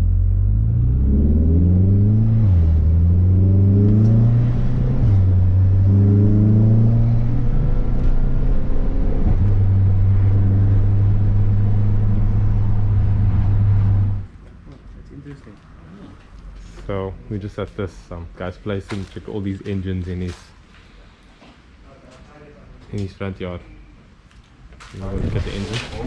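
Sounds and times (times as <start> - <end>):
car engine accelerating: 0.0 - 14.3.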